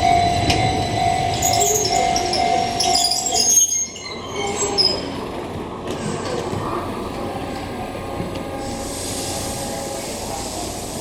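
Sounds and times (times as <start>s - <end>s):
train rumbling on rails: 0.0s - 11.0s
high wheel squeal: 0.8s - 5.3s.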